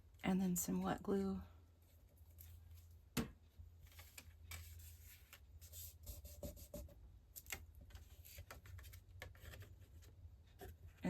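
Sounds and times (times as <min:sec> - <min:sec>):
paper rustling: 0:03.8 - 0:06.4.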